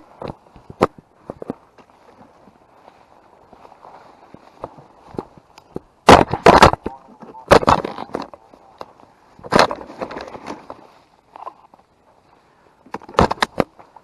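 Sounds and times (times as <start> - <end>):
footsteps crunching dry leaves: 1.2 - 5.5.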